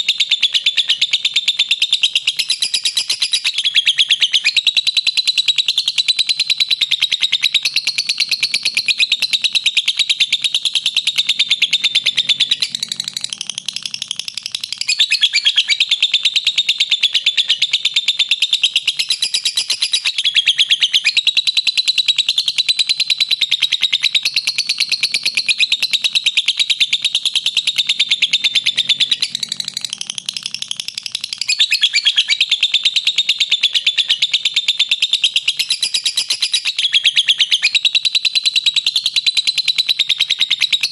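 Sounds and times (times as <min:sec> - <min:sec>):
lovebird shrill chatter: 0:11.4 - 0:16.1, 0:19.0 - 0:21.4, 0:23.8 - 0:34.4, 0:35.0 - 0:38.0.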